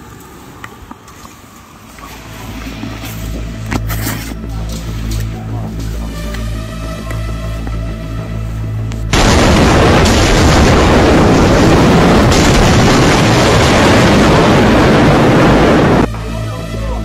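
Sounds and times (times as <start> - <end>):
storm wind buffeting microphone: 9.1 - 16.1.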